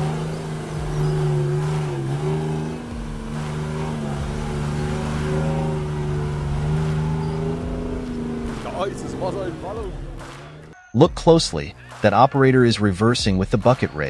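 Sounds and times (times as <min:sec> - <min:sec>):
heavy vehicle engine running: 0:00.0 - 0:10.7.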